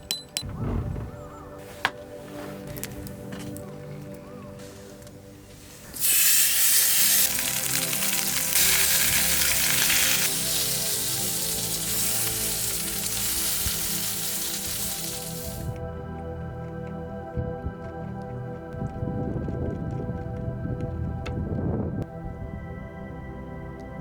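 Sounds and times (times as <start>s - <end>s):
background music: 0.0s - 24.0s
meat sizzling on a griddle: 6.0s - 15.7s.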